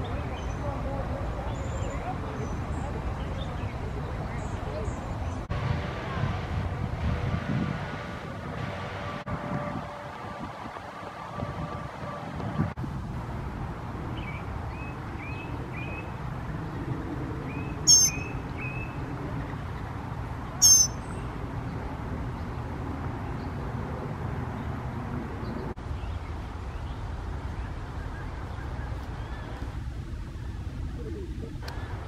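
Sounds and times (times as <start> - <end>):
low outdoor rumble: 0.0 - 32.0
loud high-pitched bird calls: 17.8 - 18.8, 20.6 - 21.1
faint short bird chirps: 20.6 - 21.0.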